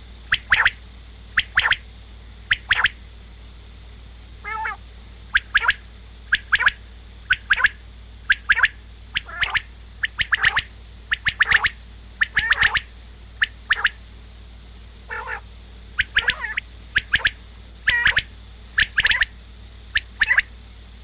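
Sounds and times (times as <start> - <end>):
quail song: 0.0 - 21.0.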